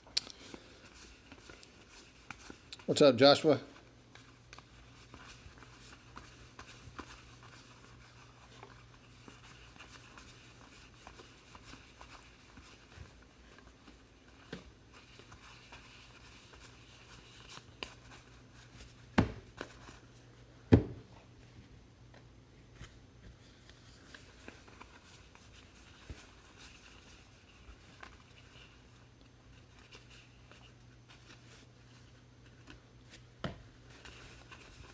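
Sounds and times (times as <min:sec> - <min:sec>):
cards rustling and clicking: 0:00.0 - 0:03.0, 0:03.8 - 0:18.9.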